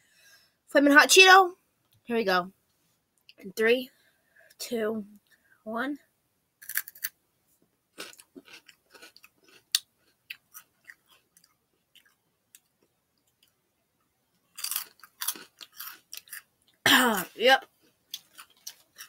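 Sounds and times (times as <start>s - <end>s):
crunchy snack chewing: 6.6s - 7.1s, 8.0s - 13.6s, 14.5s - 16.8s, 18.1s - 19.0s.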